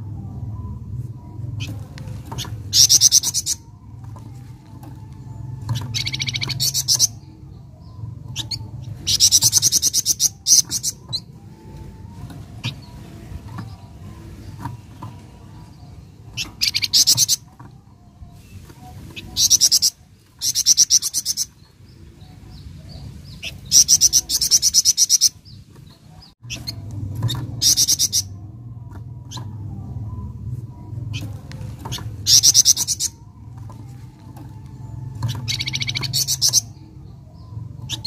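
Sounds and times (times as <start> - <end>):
low steady hum: 0.0 - 38.0
songbird singing fast trills: 2.4 - 3.8, 5.2 - 11.9, 18.3 - 25.6, 31.9 - 33.4, 34.8 - 38.0.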